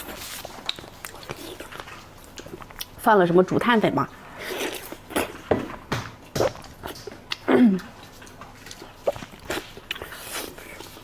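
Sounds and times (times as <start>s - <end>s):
mouth chewing smacks and clicks: 0.3s - 3.0s, 6.2s - 11.0s.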